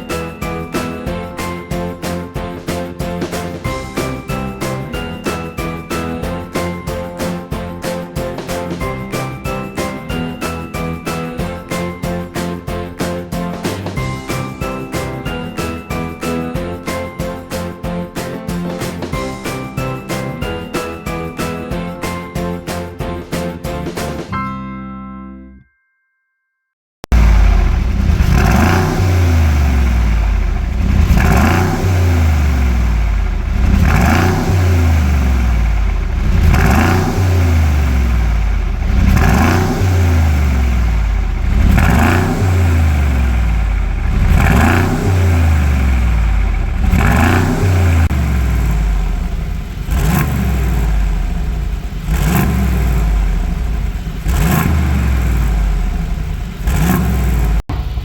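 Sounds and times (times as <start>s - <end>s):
car engine revving: 27.1s - 58.0s.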